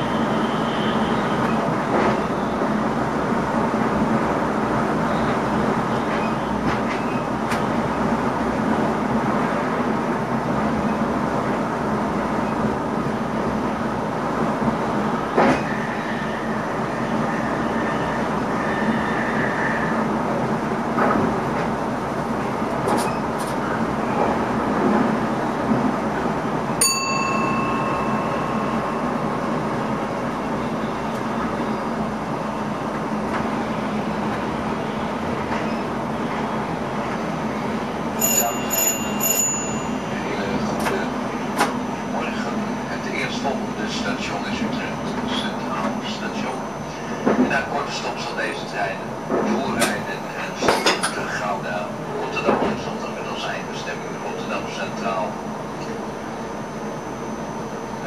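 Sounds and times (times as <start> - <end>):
train rolling noise: 0.0 - 58.0
brief high tone: 26.8 - 30.0, 38.2 - 40.0.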